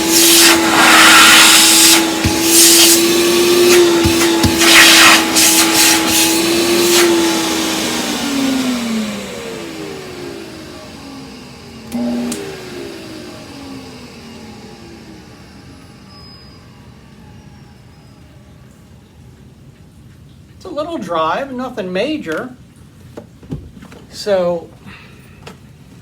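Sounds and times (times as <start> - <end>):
air rushing through hose: 0.0 - 7.5
vacuum cleaner motor humming: 0.0 - 17.8.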